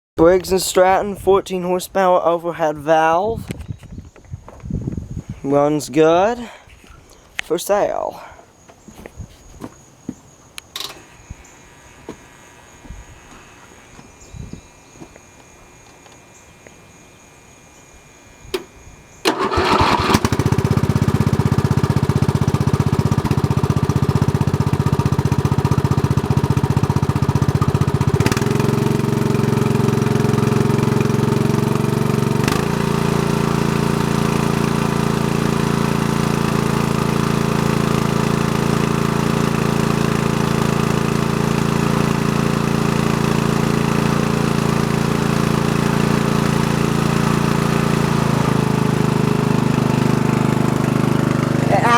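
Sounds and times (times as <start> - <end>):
electric starter cranking: 18.5 - 51.9
engine running: 19.2 - 51.9.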